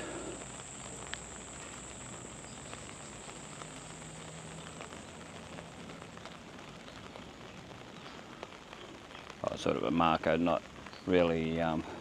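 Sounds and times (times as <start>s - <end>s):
light rain pattering: 0.0s - 12.0s.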